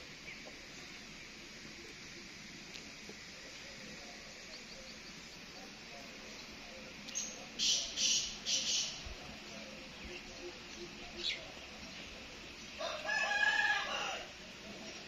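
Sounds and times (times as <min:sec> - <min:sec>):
faint outdoor ambience: 0:00.0 - 0:15.0
harsh scratchy bird calls: 0:07.1 - 0:09.0.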